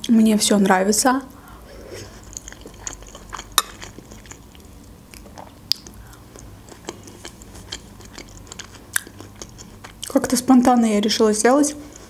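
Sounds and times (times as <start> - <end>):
chewing and mouth smacks: 2.0 - 10.2.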